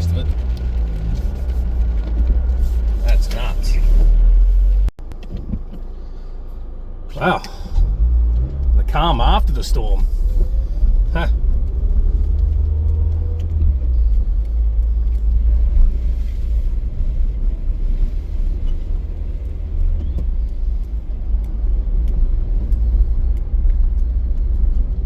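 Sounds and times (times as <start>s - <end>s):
car engine rumbling in cabin: 0.0s - 25.0s.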